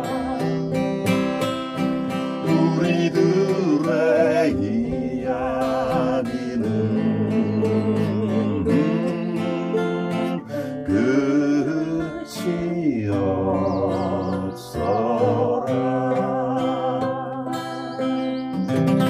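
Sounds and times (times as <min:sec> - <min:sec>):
ukulele strummed: 0:00.0 - 0:10.3
person singing with vibrato: 0:00.0 - 0:18.5
acoustic guitar strummed: 0:00.0 - 0:19.0.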